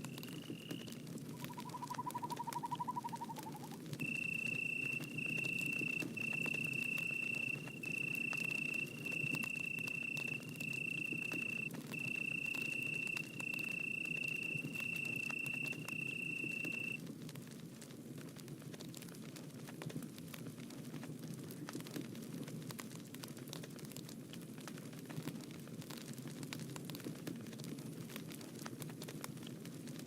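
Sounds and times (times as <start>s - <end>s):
high tone-like call: 0.0s - 17.0s
campfire crackling: 0.0s - 30.0s
fast trilling call: 1.4s - 17.0s.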